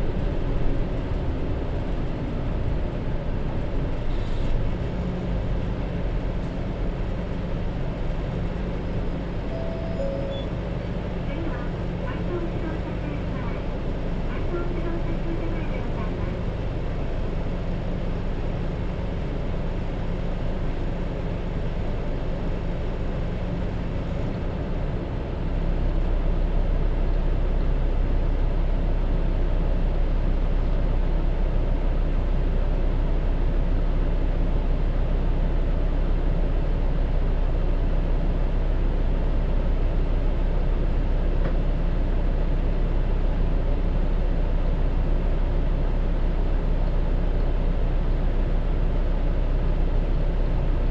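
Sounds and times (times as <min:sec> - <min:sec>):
road and drivetrain noise: 0:00.0 - 0:32.0
bus diesel engine running: 0:00.0 - 0:50.9.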